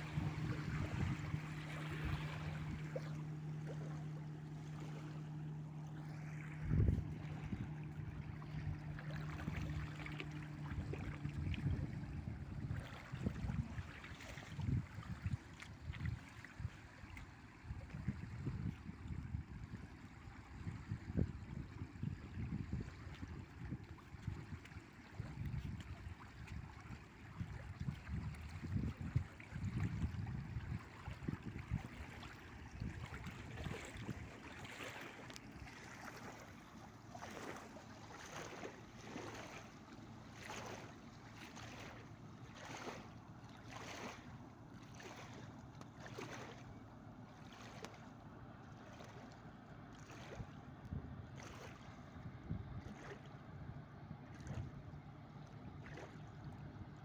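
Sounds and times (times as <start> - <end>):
wind rumbling on microphone: 0.0 - 4.1, 6.0 - 16.8, 17.6 - 34.6, 51.8 - 53.1
wake waves splashing on riverbank: 0.0 - 16.5, 30.6 - 52.0.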